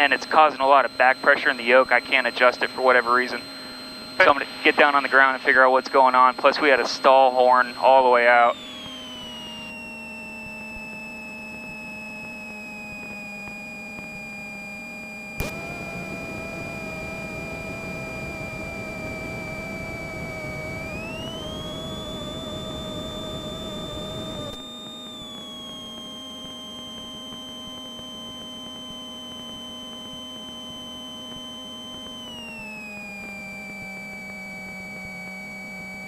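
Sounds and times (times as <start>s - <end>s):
high-pitched electrical whine: 0.0s - 36.0s
sharp click: 15.4s - 15.7s.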